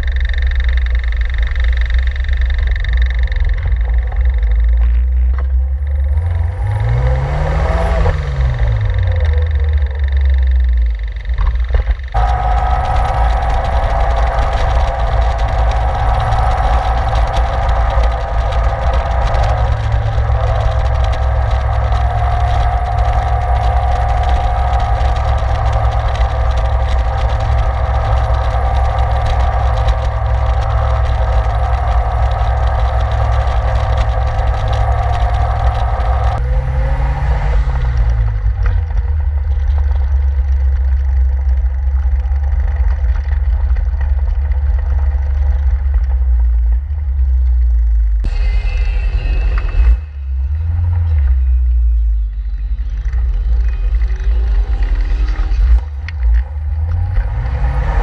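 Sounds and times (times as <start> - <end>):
car engine running: 0.0 - 58.0
wind rush: 12.1 - 40.2.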